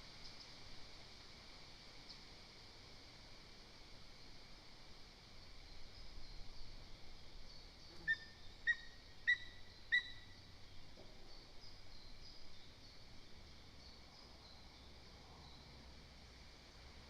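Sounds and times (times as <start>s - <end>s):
faint songbird twittering: 5.4s - 15.9s
eagle yelping calls: 8.0s - 10.2s.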